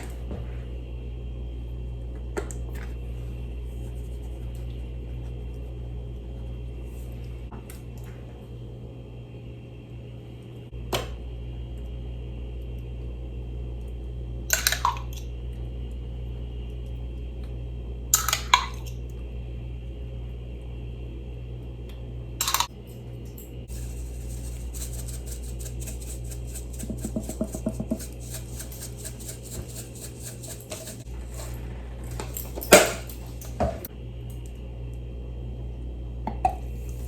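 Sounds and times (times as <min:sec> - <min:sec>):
steady low hum: 0:19.0 - 0:37.0.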